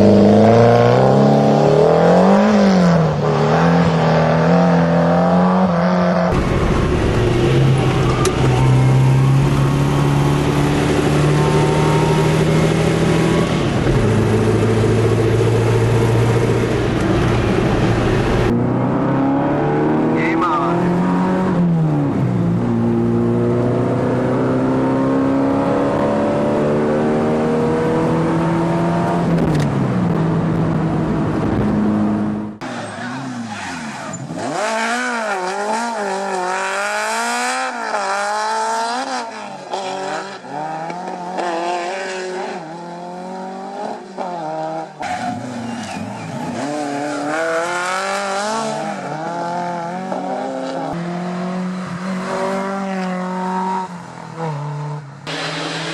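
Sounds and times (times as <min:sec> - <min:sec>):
car engine revving: 0:00.0 - 0:55.9.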